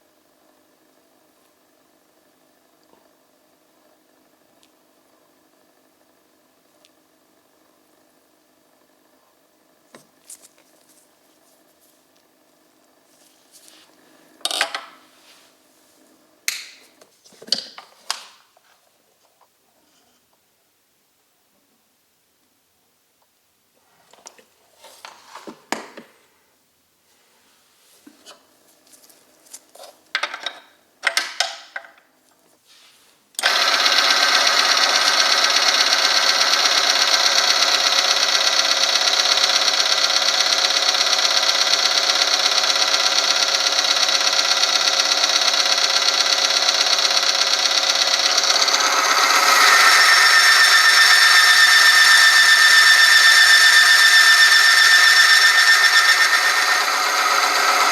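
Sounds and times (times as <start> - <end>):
machine grinding: 33.4 - 57.9
high squealing tone: 48.6 - 57.9.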